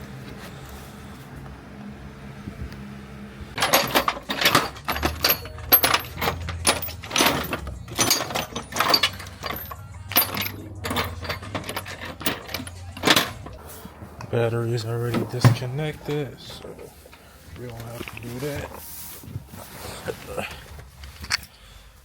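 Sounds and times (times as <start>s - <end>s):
faint low hum: 0.0s - 22.0s
small hard objects clinking: 3.6s - 13.7s.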